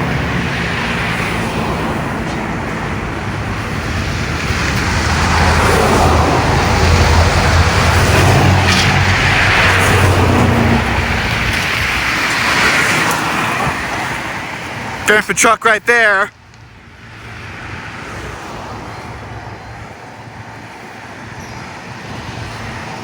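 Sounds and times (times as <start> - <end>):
vehicle passing by: 0.0 - 15.0.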